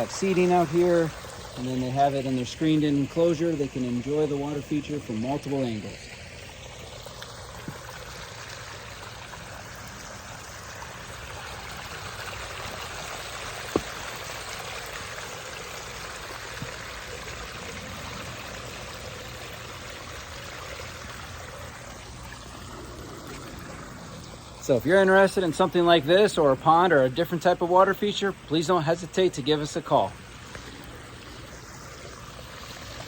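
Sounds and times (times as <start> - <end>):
waterfall splashing: 10.4 - 22.2.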